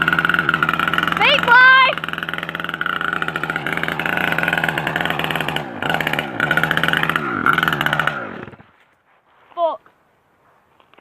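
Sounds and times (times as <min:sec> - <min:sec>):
motorbike engine revving: 0:00.0 - 0:08.8.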